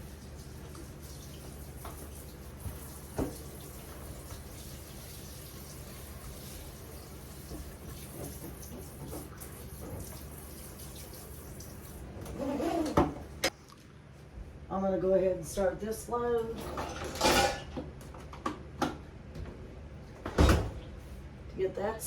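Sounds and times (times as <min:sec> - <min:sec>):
tap running into sink: 0:01.4 - 0:04.6.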